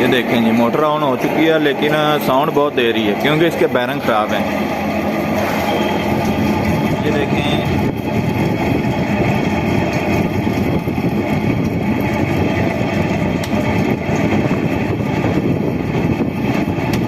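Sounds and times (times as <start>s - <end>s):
air conditioner fan rattling drone: 0.0s - 17.0s.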